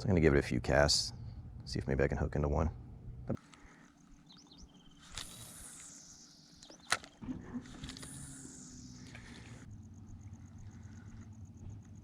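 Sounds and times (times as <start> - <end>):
fishing line hissing off spool: 4.9 - 9.7
sharp reel click: 5.0 - 9.6
fishing reel cranking whir: 5.0 - 9.7.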